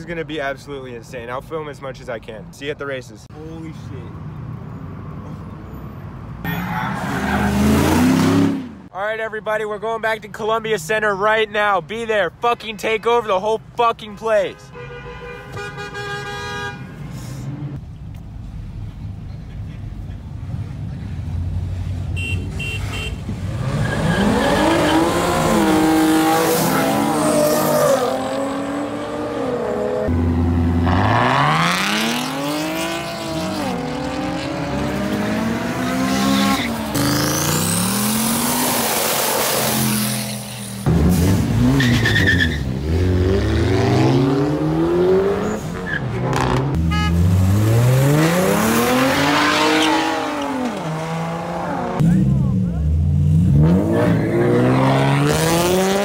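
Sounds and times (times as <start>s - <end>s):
tyres squealing on pavement: 5.7s - 8.0s, 22.2s - 28.4s, 41.7s - 42.7s, 45.4s - 46.6s
car engines revving hard: 6.4s - 8.9s, 23.2s - 56.0s.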